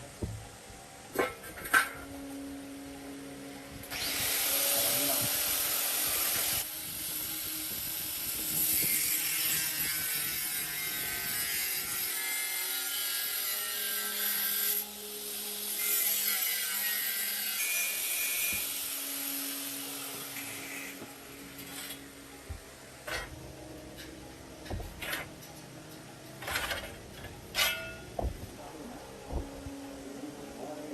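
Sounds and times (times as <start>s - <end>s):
tool scraping hiss: 3.8s - 23.3s.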